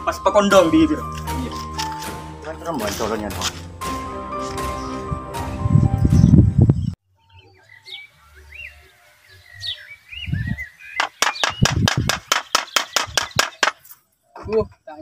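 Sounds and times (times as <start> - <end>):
small birds chirping: 4.6 - 15.0
fast run of sharp clacks: 11.0 - 13.8.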